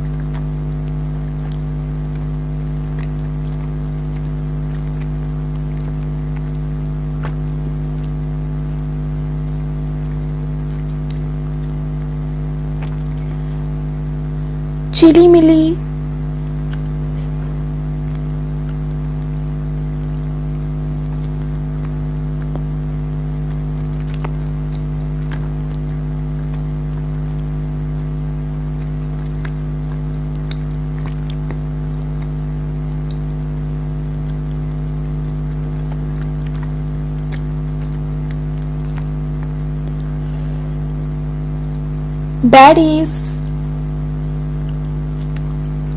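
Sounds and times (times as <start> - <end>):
steady hum with fixed tones: 42.1 - 43.5.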